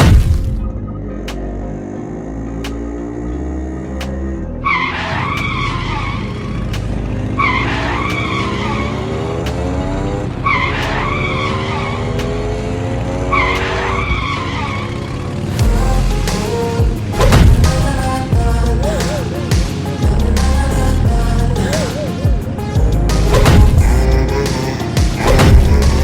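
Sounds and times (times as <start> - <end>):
tire squealing: 0.8 - 15.6.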